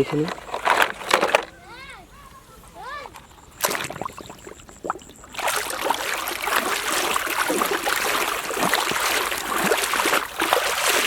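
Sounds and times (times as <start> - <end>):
water running and splashing: 3.6 - 11.0.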